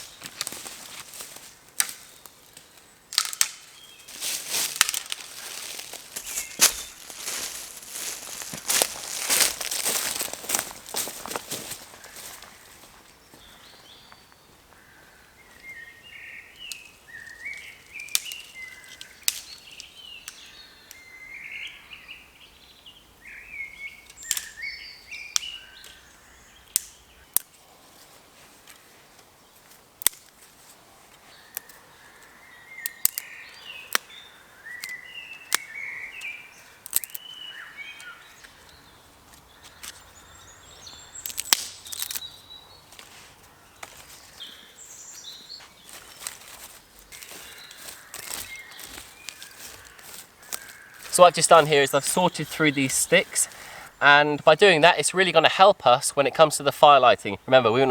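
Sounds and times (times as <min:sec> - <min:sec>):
sticks cracking and breaking: 0:00.0 - 0:11.9, 0:16.6 - 0:20.5, 0:24.1 - 0:24.7, 0:26.7 - 0:27.6, 0:29.7 - 0:30.6, 0:31.5 - 0:31.8, 0:32.8 - 0:37.4, 0:39.3 - 0:40.1, 0:41.1 - 0:44.3, 0:45.9 - 0:53.3
songbird warbling: 0:31.4 - 0:42.8, 0:47.2 - 0:57.9.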